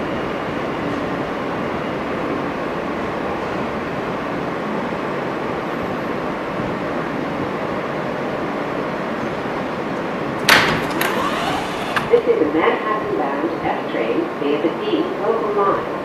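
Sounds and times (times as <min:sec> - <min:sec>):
subway car hum and rushing: 0:00.0 - 0:16.0.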